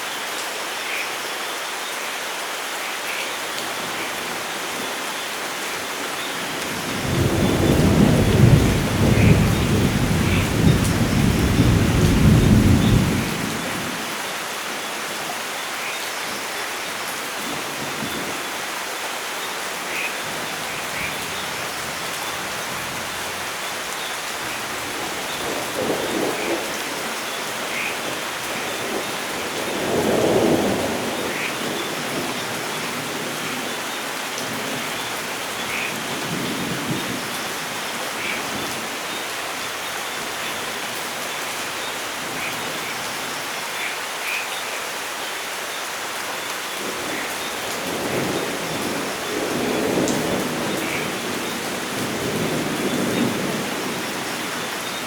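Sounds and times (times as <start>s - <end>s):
steady rain falling: 0.0s - 55.0s
thunder rolling: 6.9s - 13.9s.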